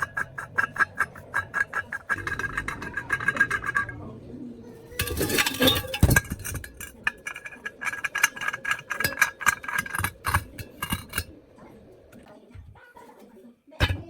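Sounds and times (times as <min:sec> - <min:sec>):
sharp clicks and knocks: 0:00.0 - 0:04.1, 0:04.9 - 0:12.7.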